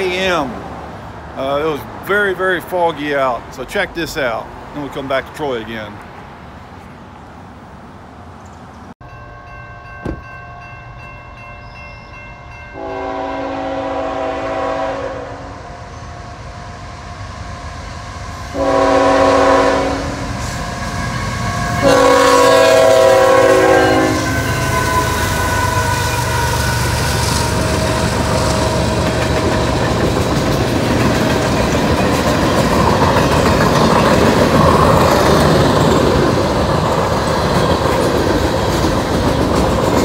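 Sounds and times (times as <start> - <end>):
crossing bell ringing: 9.0 - 14.2
locomotive horn blasts: 12.7 - 15.6, 18.5 - 20.4, 21.7 - 26.5.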